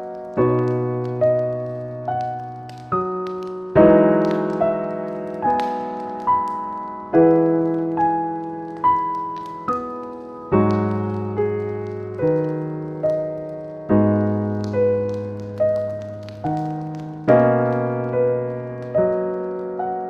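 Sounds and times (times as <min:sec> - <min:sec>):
slow gentle piano music: 0:00.0 - 0:20.0.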